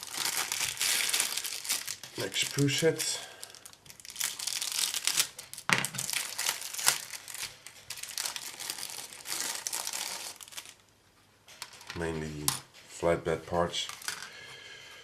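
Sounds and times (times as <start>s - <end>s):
plastic bag crinkling: 0.0s - 10.9s.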